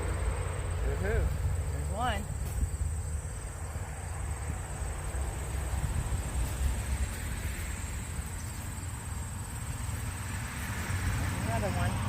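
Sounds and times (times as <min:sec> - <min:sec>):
crickets droning: 0:00.0 - 0:12.0
wind buffeting microphone: 0:01.0 - 0:10.0.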